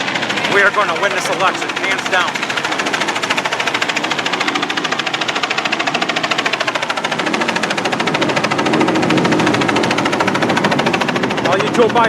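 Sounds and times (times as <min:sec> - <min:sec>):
helicopter rotors beating: 0:00.0 - 0:12.0.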